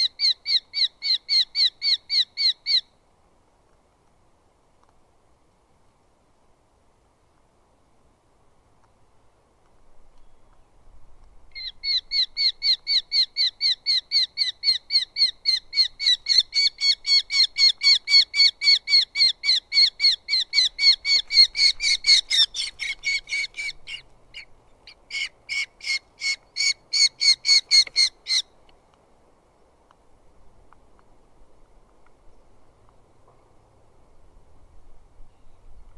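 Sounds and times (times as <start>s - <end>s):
falcon calling sharp repeated notes: 11.5s - 28.5s.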